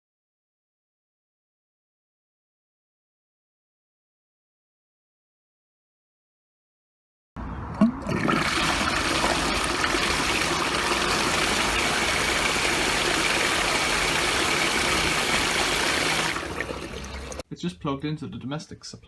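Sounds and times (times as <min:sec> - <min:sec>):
rush of pumped water: 0:07.7 - 0:17.4
sump pump motor hum: 0:07.7 - 0:17.4.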